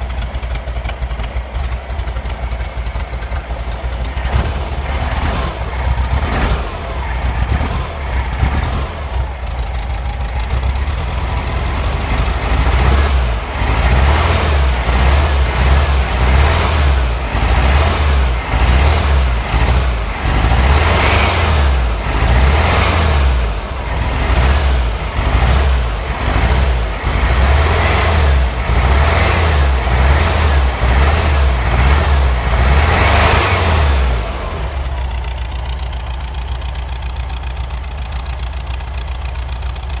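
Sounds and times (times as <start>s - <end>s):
car engine revving and idling: 0.0s - 40.0s.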